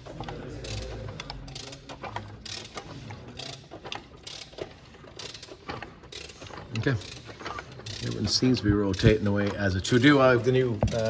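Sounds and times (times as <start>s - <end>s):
socket ratchet clicking: 0.6s - 6.4s.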